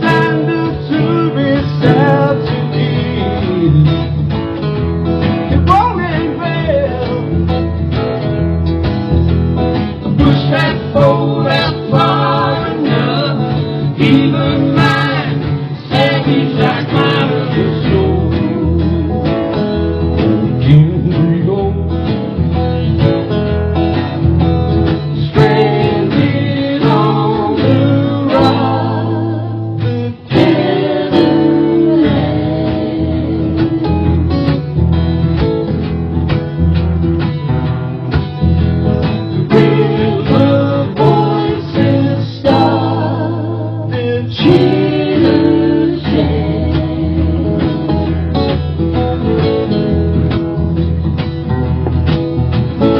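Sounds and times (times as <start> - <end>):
people singing: 0.0 - 4.5, 10.0 - 22.5, 24.8 - 34.8, 39.0 - 50.4
acoustic guitars strummed: 0.0 - 52.9.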